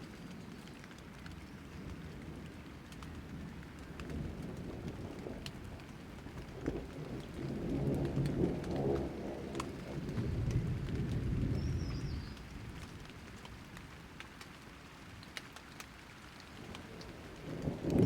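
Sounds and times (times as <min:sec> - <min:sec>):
rain drops clicking: 0:00.0 - 0:18.0
thunder rumbling: 0:03.1 - 0:13.4, 0:16.6 - 0:18.0.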